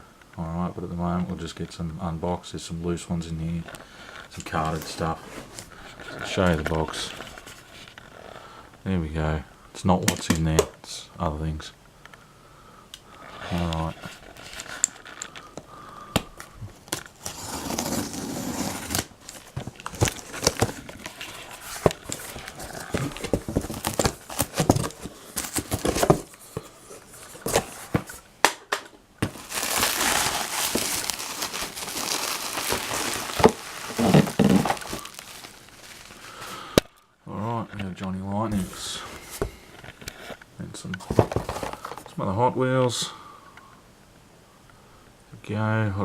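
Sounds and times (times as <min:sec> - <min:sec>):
packing material crinkling and tearing: 0:16.8 - 0:28.2, 0:29.2 - 0:37.0.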